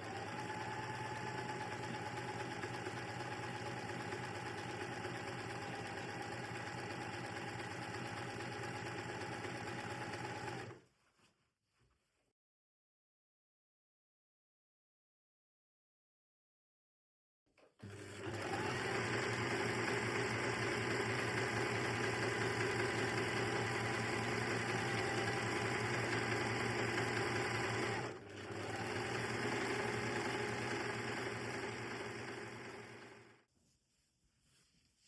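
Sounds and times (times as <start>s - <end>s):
sewing machine stitching: 0.0s - 10.8s, 17.7s - 33.4s.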